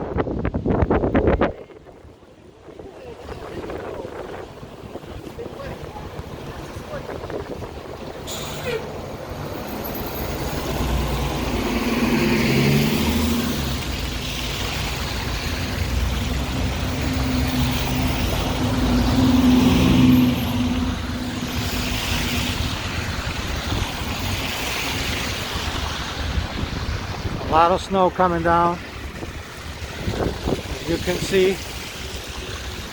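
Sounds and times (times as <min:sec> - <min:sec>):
road traffic: 0:00.0 - 0:32.9
large vehicle engine humming: 0:04.6 - 0:24.5.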